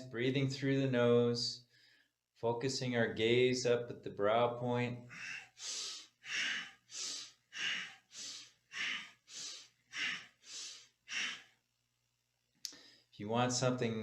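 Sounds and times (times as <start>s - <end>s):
person breathing forcefully through nose: 5.1s - 11.6s.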